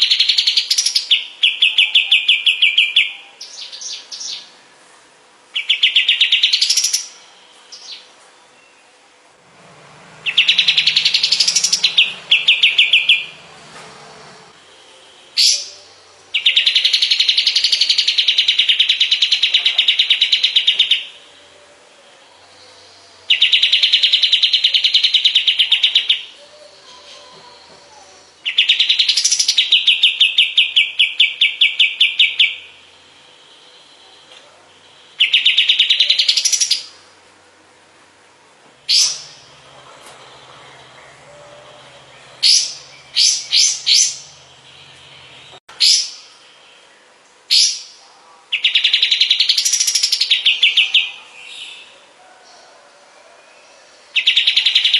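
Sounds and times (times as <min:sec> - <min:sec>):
songbird singing rattling notes: 0:05.5 - 0:21.4, 0:38.8 - 0:48.0, 0:48.6 - 0:51.2.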